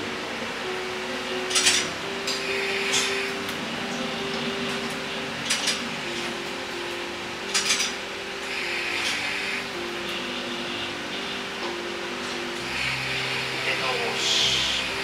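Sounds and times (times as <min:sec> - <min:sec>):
railcar engine drone: 0:00.0 - 0:15.0
wheels clanking over rail joints: 0:01.4 - 0:09.4.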